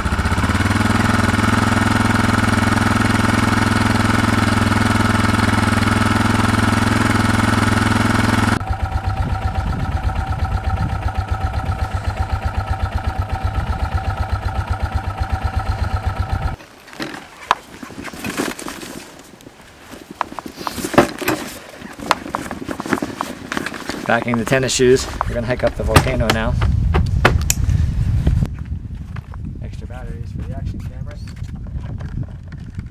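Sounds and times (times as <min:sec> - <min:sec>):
motorcycle engine running: 0:00.0 - 0:16.6, 0:24.1 - 0:28.5.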